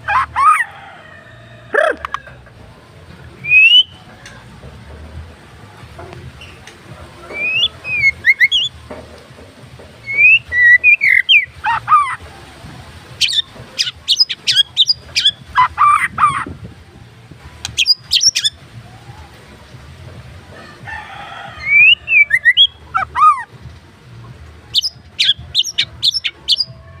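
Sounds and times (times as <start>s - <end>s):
bird singing varied phrases: 3.4s - 4.0s, 7.3s - 8.8s, 10.0s - 12.2s, 13.2s - 16.5s, 17.6s - 18.6s, 21.6s - 23.5s, 24.7s - 26.8s.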